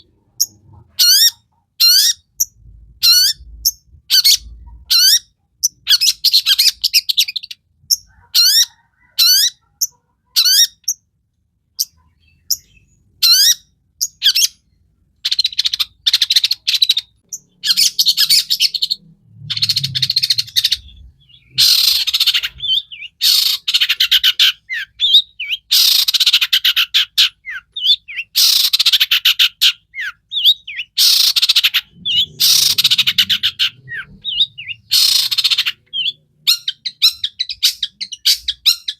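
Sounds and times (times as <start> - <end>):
shrike singing: 30.0 - 38.3.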